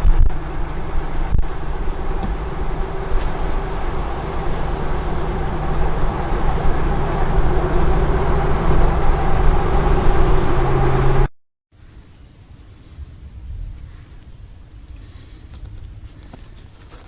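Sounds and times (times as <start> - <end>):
storm wind buffeting microphone: 0.0 - 11.3
low hum: 0.0 - 17.0.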